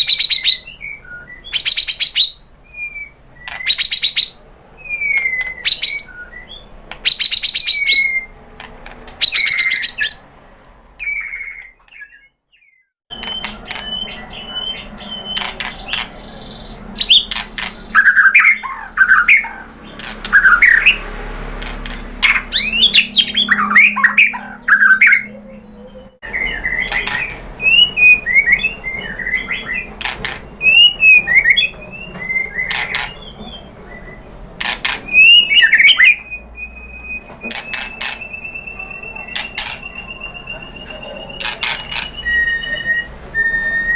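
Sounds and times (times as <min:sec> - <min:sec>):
bird singing whistles and trills: 0:00.0 - 0:21.0, 0:21.9 - 0:43.9.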